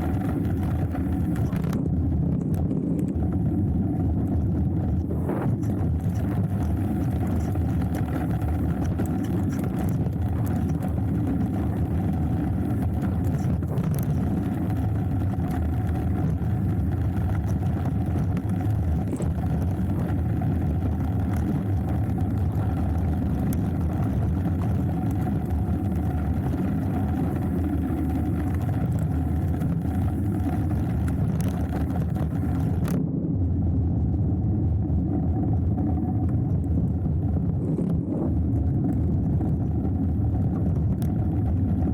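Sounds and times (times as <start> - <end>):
tyres rolling on trail: 0.0 - 2.0, 2.6 - 33.0
bike clicks and rattles: 0.0 - 33.0, 36.2 - 41.9
wind rumble on microphone: 0.0 - 41.9.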